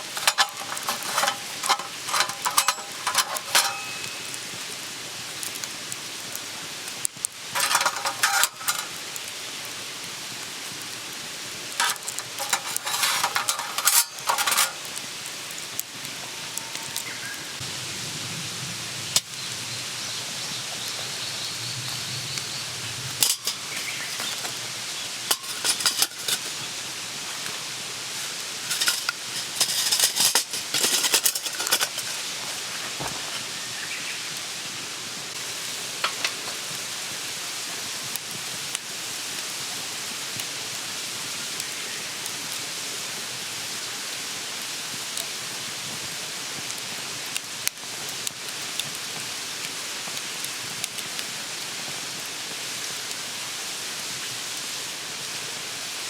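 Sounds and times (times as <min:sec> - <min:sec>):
cooking utensils clattering: 0:00.0 - 0:04.4, 0:07.5 - 0:09.1, 0:11.8 - 0:15.0, 0:23.2 - 0:33.6, 0:36.0 - 0:36.7
steady hiss: 0:00.0 - 0:56.0.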